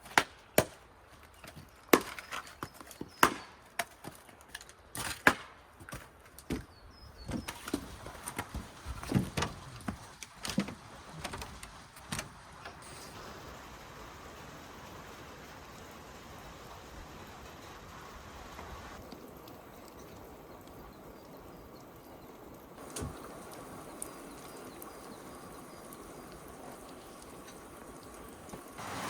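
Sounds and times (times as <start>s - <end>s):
wood being chopped with blade: 0.0s - 0.8s, 1.4s - 6.7s.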